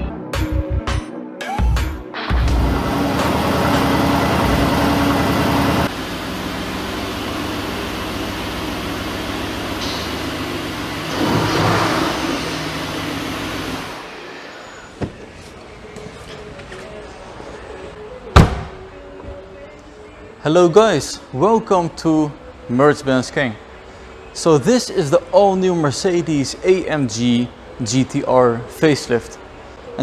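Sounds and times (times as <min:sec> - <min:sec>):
car engine revving: 0:02.3 - 0:14.3.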